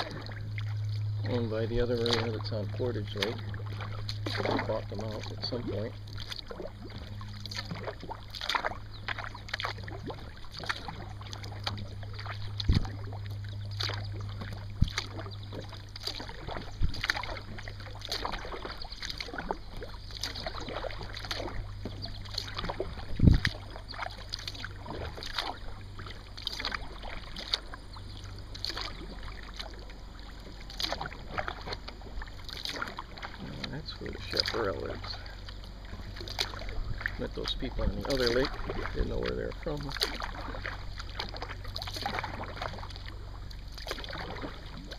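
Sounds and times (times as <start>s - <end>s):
paddle knocking on kayak: 0.0s - 13.2s
constant low hum: 0.0s - 44.9s
paddle dipping and dripping: 0.0s - 44.9s.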